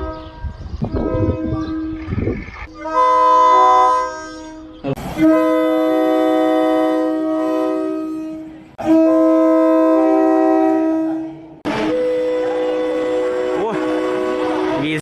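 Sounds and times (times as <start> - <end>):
locomotive air horn chord blasts: 0.0 - 2.1, 2.7 - 15.0.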